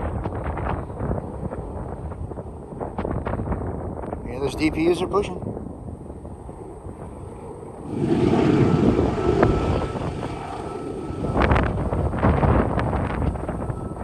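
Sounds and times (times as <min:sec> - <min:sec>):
wind buffeting microphone: 0:00.0 - 0:14.0
diesel locomotives working hard: 0:07.8 - 0:14.0.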